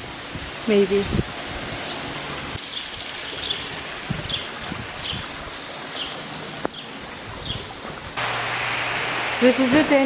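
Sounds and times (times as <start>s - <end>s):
running water: 0.0s - 10.0s
small bird chirping: 5.9s - 7.8s.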